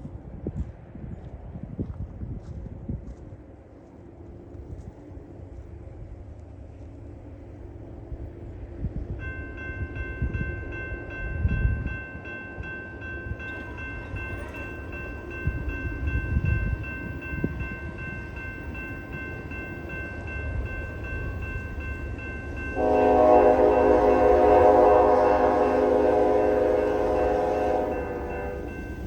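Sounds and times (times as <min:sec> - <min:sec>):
low wind rumble: 0:00.0 - 0:29.0
electronic crossing bell ringing: 0:09.3 - 0:29.0
locomotive air horn: 0:22.8 - 0:28.8.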